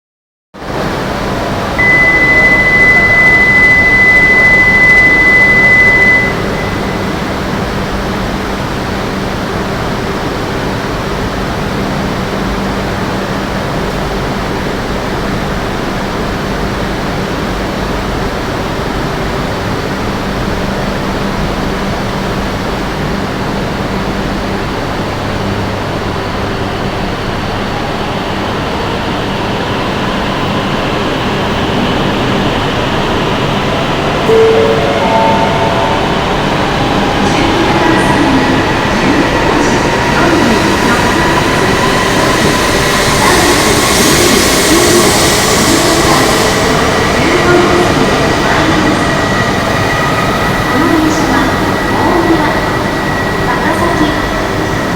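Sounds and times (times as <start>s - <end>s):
train platform hum and hiss: 0.6s - 54.9s
high electronic tone: 1.8s - 8.0s, 34.3s - 37.8s.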